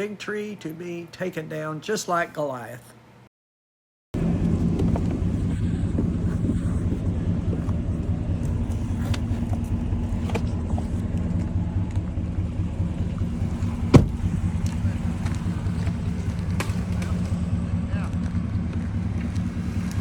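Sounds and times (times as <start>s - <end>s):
vehicle engine humming: 4.2s - 20.0s.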